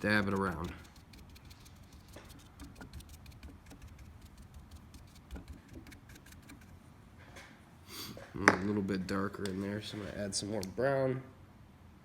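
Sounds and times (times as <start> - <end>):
sponge brush dabbing paint: 0.0 - 6.8.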